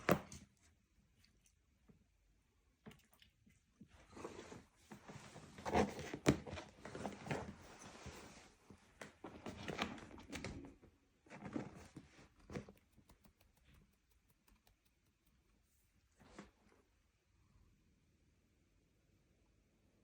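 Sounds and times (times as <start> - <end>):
sharp clicks: 12.6 - 15.6.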